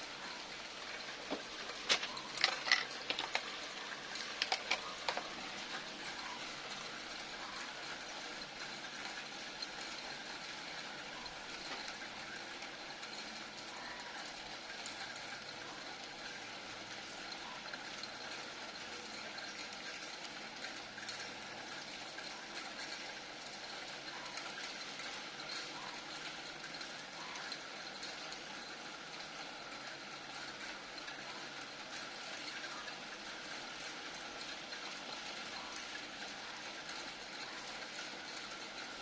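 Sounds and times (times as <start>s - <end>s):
small hard parts clicking: 0.0s - 7.4s.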